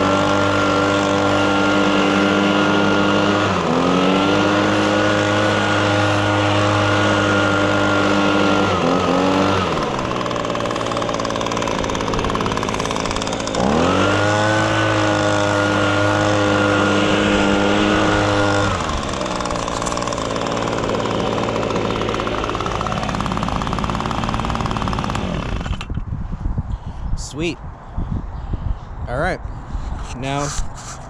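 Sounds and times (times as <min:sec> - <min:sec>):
leaf blower engine revving: 0:00.0 - 0:26.0.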